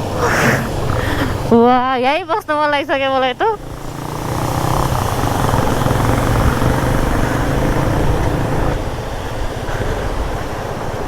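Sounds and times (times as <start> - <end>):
motorcycle engine running: 2.7 - 11.0.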